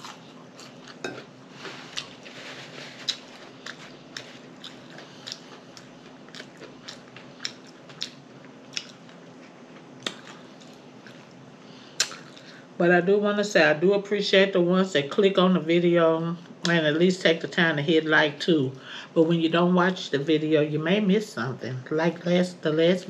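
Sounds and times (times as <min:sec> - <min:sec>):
faint steady hum: 0:00.0 - 0:23.0
person chewing with lip smacks: 0:01.9 - 0:02.3, 0:02.9 - 0:11.4, 0:12.0 - 0:12.5.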